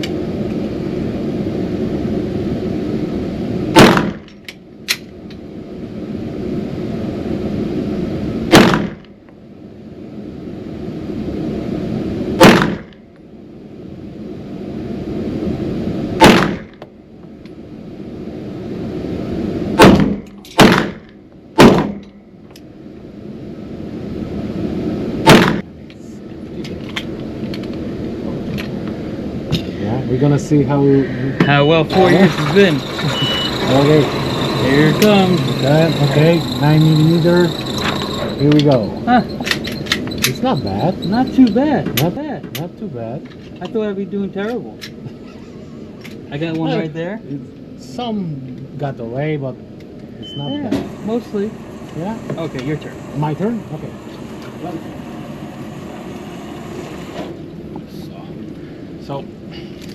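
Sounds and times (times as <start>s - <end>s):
steady low hum: 0.0s - 59.9s
pistol shots: 3.8s - 4.3s, 8.5s - 9.0s, 12.4s - 12.9s, 16.2s - 16.7s, 19.8s - 22.0s, 25.2s - 25.6s.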